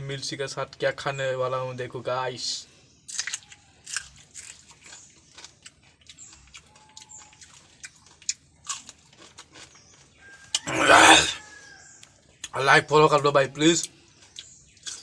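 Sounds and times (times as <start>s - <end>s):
crisp crunching chewing: 3.1s - 11.4s, 14.1s - 15.0s.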